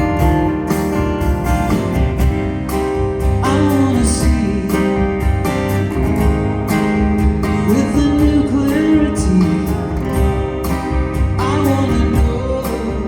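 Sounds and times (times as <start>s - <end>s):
live band music: 0.0s - 13.0s
person singing: 3.4s - 5.1s, 7.6s - 10.0s, 11.4s - 13.0s.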